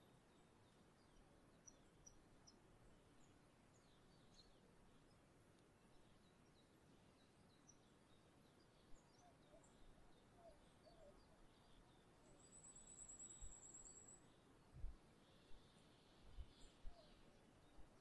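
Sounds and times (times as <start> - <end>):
faint bird chirps: 5.9 - 18.0.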